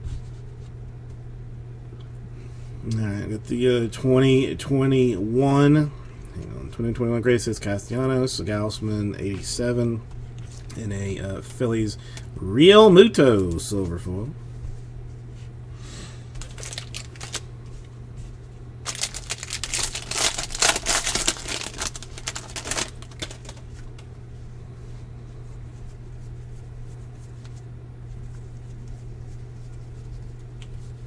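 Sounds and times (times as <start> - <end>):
steady low hum: 0.0 - 31.0
cards being handled: 16.4 - 17.5, 18.9 - 24.1
wrapper crinkling: 16.4 - 17.5, 18.8 - 24.0.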